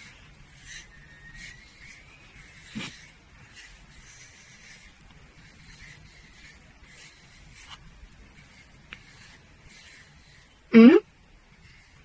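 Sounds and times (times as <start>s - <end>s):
comb brushing cat fur: 0.0s - 12.0s.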